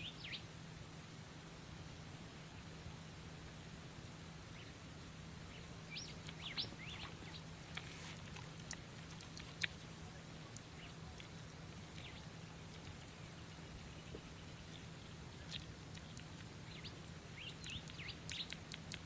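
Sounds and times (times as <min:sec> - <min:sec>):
faint low hum: 0:00.0 - 0:19.0
sharp ticks: 0:07.7 - 0:09.9, 0:15.4 - 0:19.0.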